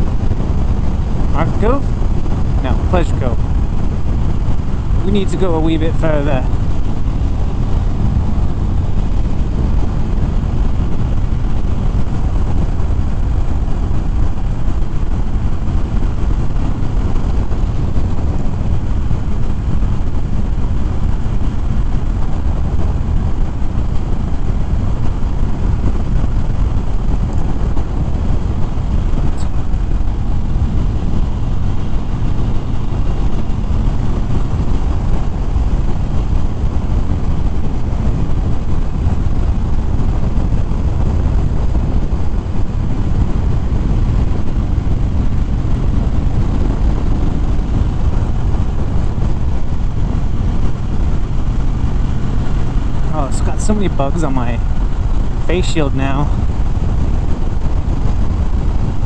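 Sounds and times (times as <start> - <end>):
motorcycle engine droning: 0.0 - 59.0
wind rushing over microphone: 0.0 - 59.0.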